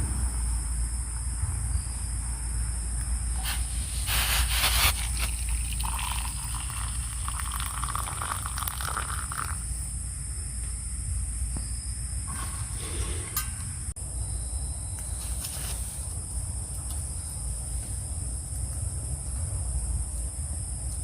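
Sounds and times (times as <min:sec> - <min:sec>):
night insects chirring: 0:00.0 - 0:21.0
rustling scrape: 0:03.4 - 0:05.6, 0:12.3 - 0:13.9, 0:15.2 - 0:16.1.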